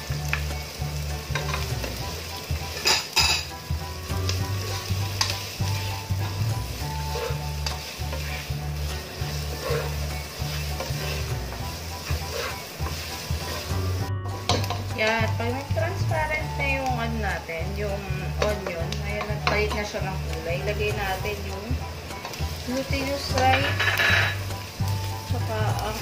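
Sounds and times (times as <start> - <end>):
food sizzling in hot oil: 0.0 - 26.0
spatula scraping a pan: 1.2 - 15.2, 22.1 - 24.8.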